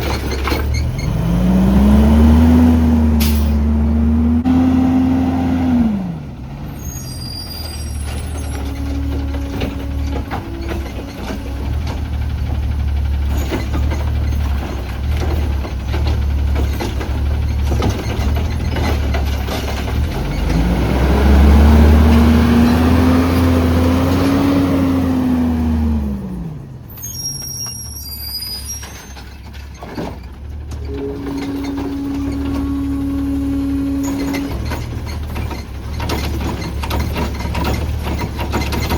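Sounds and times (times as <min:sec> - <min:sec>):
brake squeak: 0:00.0 - 0:01.4, 0:06.7 - 0:20.7, 0:26.8 - 0:38.9
garbage truck engine running: 0:00.0 - 0:38.9
air brakes hissing: 0:06.7 - 0:08.7, 0:26.9 - 0:29.4.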